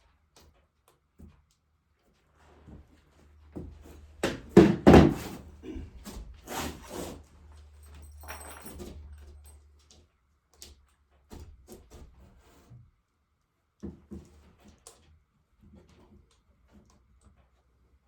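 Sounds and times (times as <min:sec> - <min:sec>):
heavy knocks and thumps: 0:04.2 - 0:06.0.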